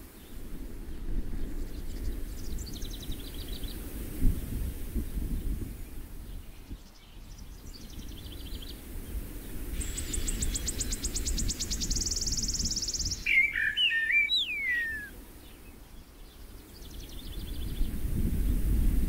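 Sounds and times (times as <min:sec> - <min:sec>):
songbird trills: 0:09.6 - 0:17.9
bird whistling: 0:09.8 - 0:15.2.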